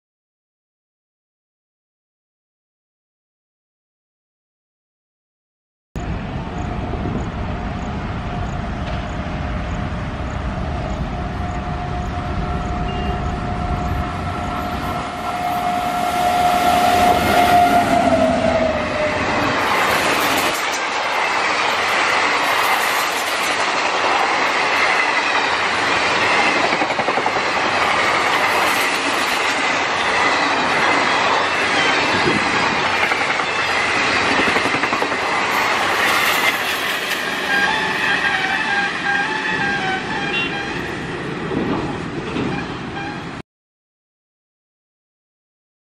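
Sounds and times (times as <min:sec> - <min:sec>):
locomotive horn: 0:11.1 - 0:19.5, 0:37.2 - 0:41.0, 0:42.4 - 0:43.4.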